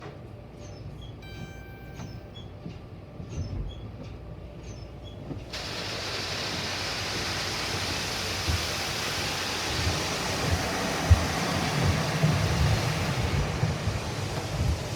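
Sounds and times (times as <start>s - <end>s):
car wash machinery rumble: 5.6s - 14.9s
loud rushing hiss: 5.6s - 14.9s.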